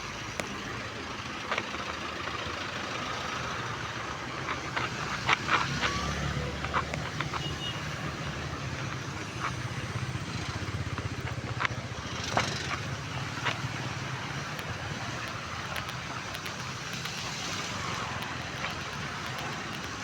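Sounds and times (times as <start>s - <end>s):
vehicle engine running: 0.0s - 20.0s
sharp taps: 10.9s - 20.0s
steady rain hiss: 12.5s - 20.0s.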